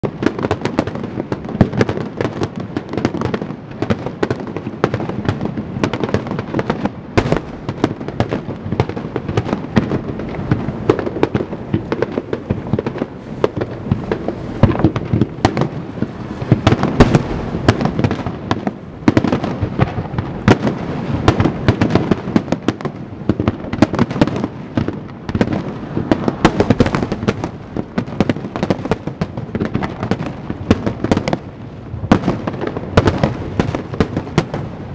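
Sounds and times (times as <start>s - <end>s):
firework shells bursting: 0.0s - 31.5s.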